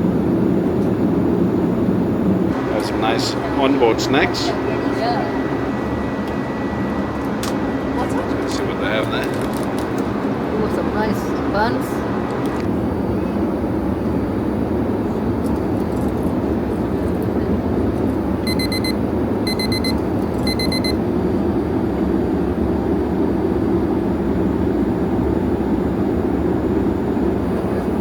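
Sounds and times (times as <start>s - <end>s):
airliner cabin engine rumble: 0.0s - 28.0s
rapid electronic beeping: 18.5s - 21.0s.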